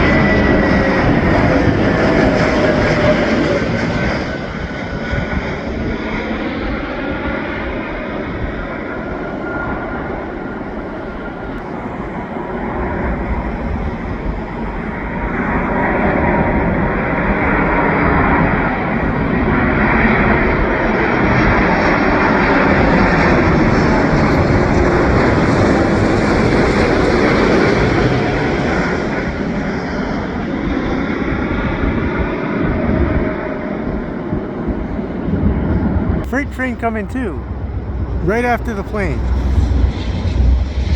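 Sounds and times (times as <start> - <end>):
airliner engine noise: 0.0 - 28.7.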